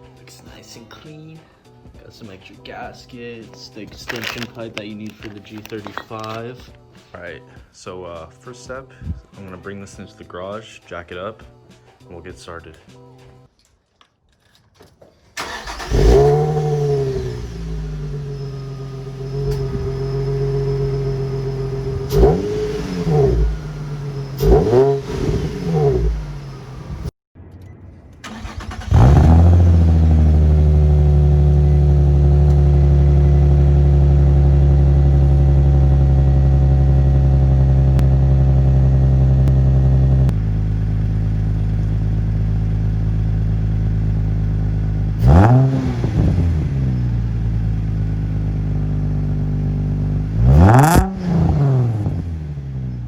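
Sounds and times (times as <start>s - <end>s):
car engine revving over idle: 15.4s - 27.1s, 28.3s - 53.0s.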